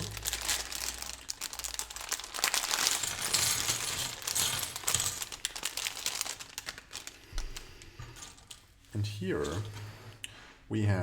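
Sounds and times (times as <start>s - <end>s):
plastic bricks clicking and rattling: 0.0s - 7.2s
plastic bag crinkling: 0.0s - 9.7s.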